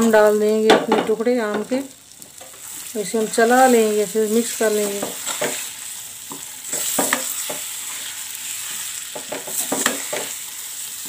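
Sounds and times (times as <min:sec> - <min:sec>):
food sizzling in hot oil: 0:00.0 - 0:11.0
spoon scraping against pan: 0:04.4 - 0:11.0.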